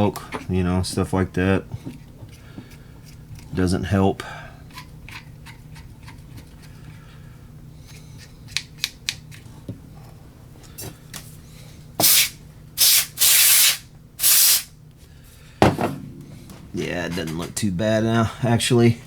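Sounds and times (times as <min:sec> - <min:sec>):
short hissing bursts: 0:12.0 - 0:14.7.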